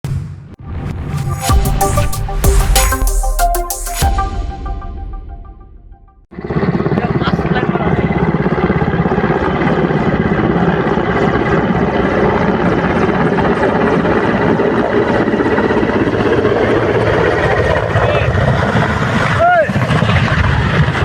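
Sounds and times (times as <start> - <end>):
helicopter rotor chopping: 6.4 - 21.0.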